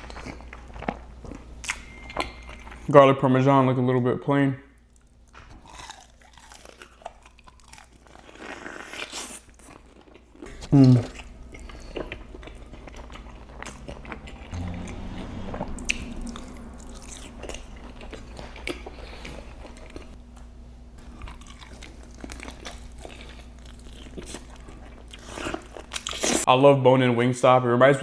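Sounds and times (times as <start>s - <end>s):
chewing crunchy chicken: 5.0s - 20.2s, 21.0s - 26.5s.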